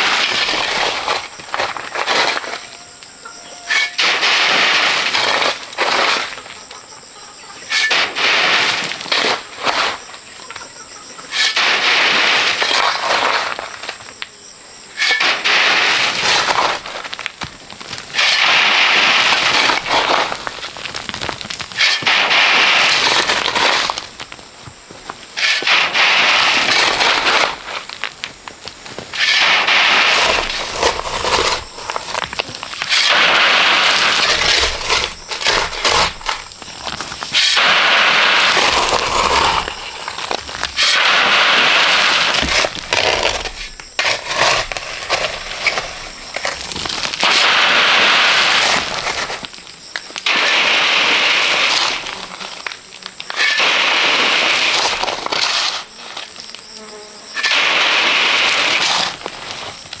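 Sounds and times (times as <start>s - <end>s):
hand tool scraping gritty material: 0.0s - 60.0s.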